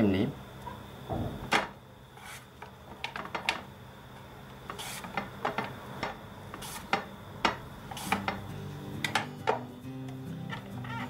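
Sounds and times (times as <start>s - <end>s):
potato scraping across mandoline blade: 10.4s - 11.0s.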